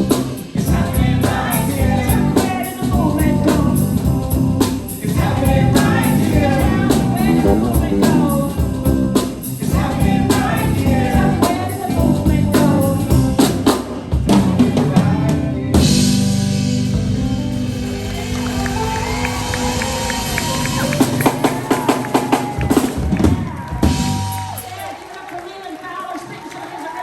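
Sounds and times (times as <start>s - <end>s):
person singing: 0.0s - 16.3s
drum kit beat: 0.0s - 24.9s
live band playing: 0.0s - 25.0s.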